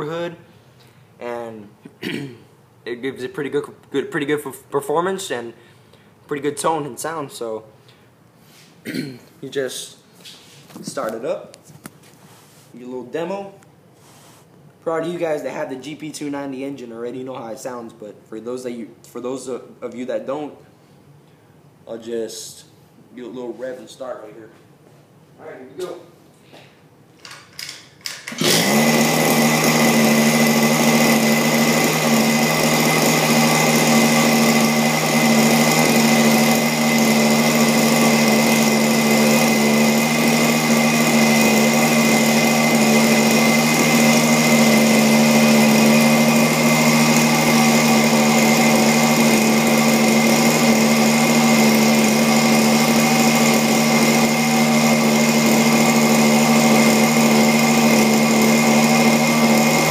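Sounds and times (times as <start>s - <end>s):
pull-start short sharp sounds: 28.1s - 59.9s
small two-stroke engine running: 28.2s - 59.9s.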